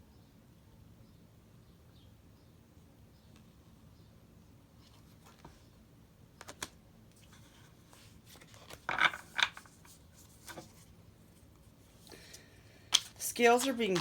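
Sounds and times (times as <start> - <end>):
cards scraping and rustling: 4.8 - 5.7, 6.4 - 14.0
cards clicking on table: 12.9 - 14.0.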